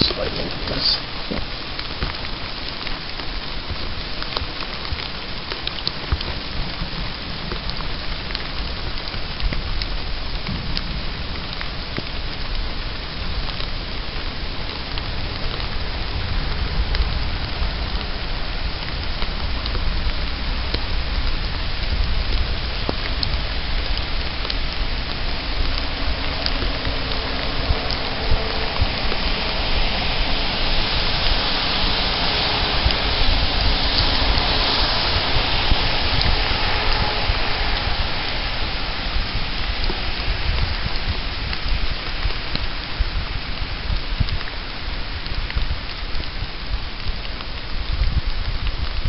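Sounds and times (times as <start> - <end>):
rain falling: 0.0 - 49.0
deep low thunder rumble: 6.4 - 44.3.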